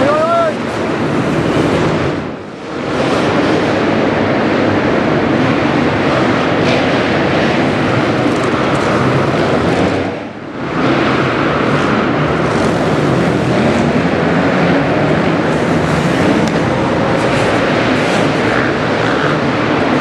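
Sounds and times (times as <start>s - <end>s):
motocross bike engine running hard: 0.0s - 20.0s.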